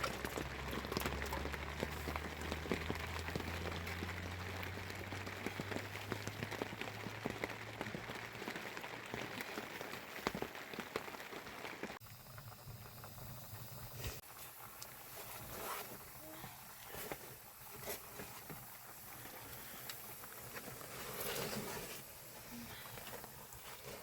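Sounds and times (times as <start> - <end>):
patter of small crackles and ticks: 0.0 - 24.0.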